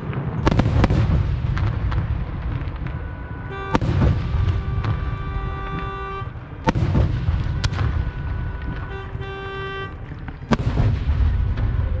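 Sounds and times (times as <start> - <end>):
low rumble of explosions: 0.0 - 12.0
horn-like tone: 2.8 - 10.4.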